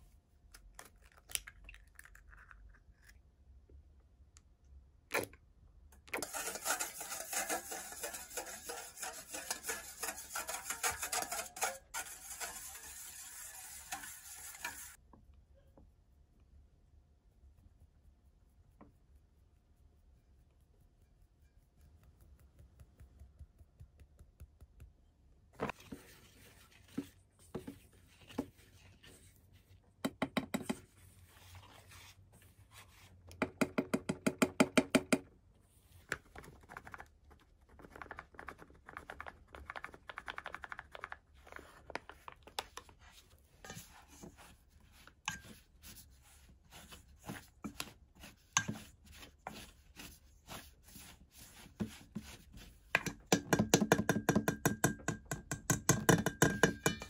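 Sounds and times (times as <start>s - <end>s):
whisk clattering in metal bowl: 6.2s - 15.0s, 43.6s - 46.0s, 47.2s - 49.7s, 53.0s - 57.0s.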